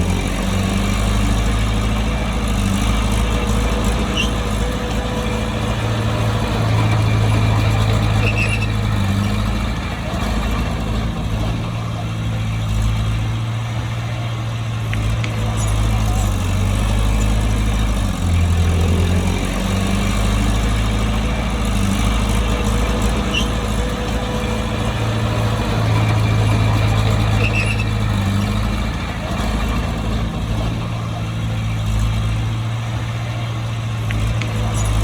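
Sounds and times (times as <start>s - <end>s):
diesel earthmoving machine engine drone: 0.0s - 35.0s
faint high squeaks: 2.8s - 10.6s, 22.0s - 24.8s, 25.7s - 29.4s.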